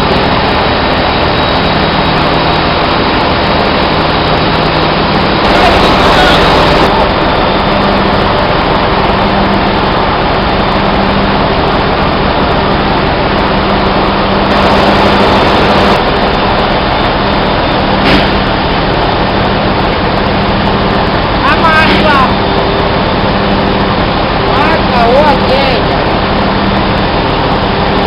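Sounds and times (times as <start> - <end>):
engine room machinery din: 0.0 - 28.0
sharp knock: 18.0 - 18.5.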